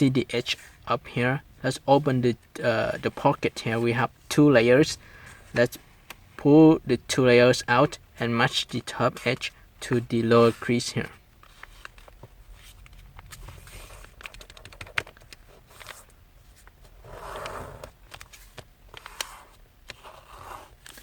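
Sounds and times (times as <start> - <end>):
paper crinkling: 11.4 - 16.6
paper rustle: 11.4 - 16.6.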